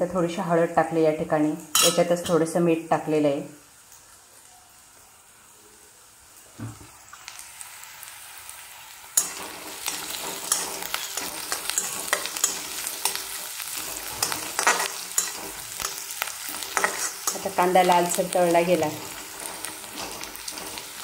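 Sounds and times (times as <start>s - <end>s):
food sizzling in oil: 0.0s - 21.0s
spoon scraping pan: 9.2s - 21.0s.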